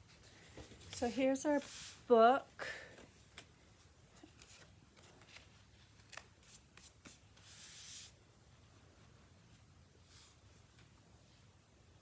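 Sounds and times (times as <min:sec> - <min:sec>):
paper rustling: 0:04.2 - 0:08.2.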